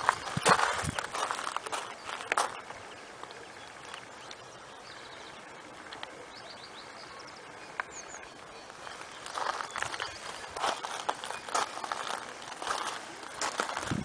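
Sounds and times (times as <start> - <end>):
crunching noise: 0.0 - 2.7, 8.6 - 14.0
faint open-air ambience: 0.0 - 14.0.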